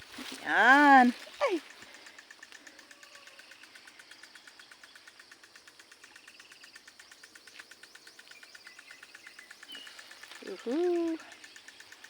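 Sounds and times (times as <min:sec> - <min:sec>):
pulsing insect trill: 0:00.0 - 0:12.0
faint bird chirps: 0:06.1 - 0:12.0.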